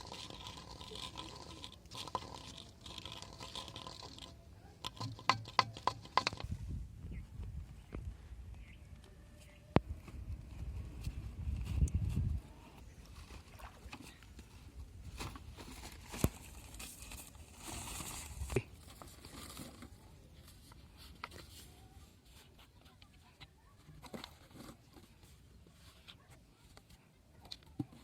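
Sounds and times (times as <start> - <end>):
handling clicks and knocks: 4.8 - 6.5.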